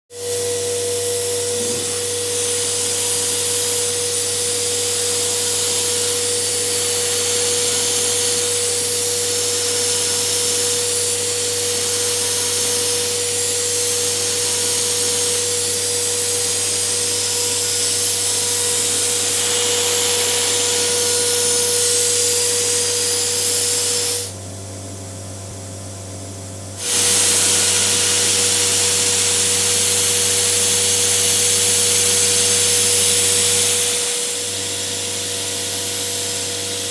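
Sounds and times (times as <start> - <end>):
cnc router cutting acrylic: 0.9 - 10.9.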